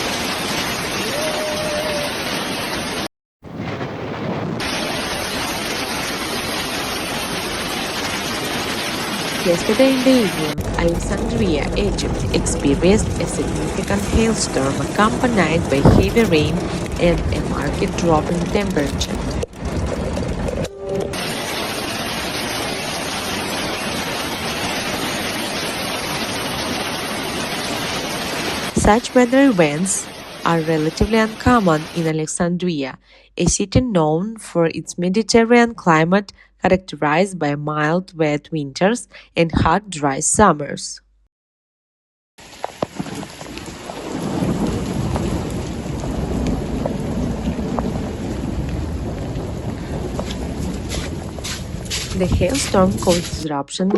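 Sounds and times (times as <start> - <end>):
heavy rain hissing: 0.0 - 3.1, 3.7 - 19.4, 21.2 - 32.0, 42.4 - 53.4
hailstones striking: 3.7 - 20.6, 42.4 - 53.4.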